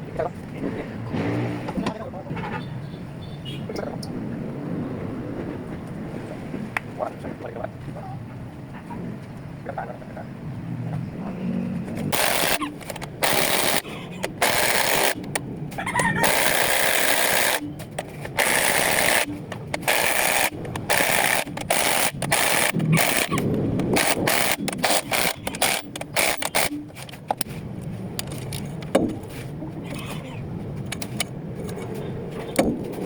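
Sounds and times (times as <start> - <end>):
loud rattling power tool: 12.0 - 15.4, 16.2 - 27.2.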